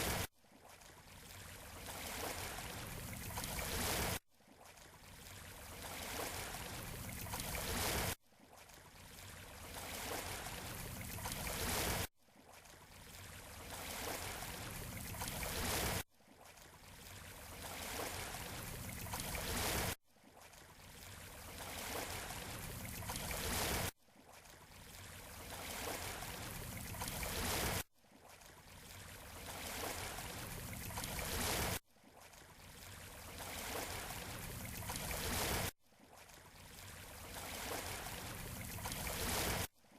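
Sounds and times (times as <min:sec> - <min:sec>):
surf washing on shore: 0:00.0 - 0:00.2.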